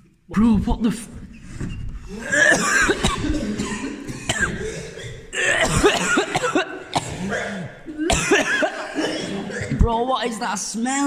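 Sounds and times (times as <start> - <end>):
man coughing: 2.1 - 9.9.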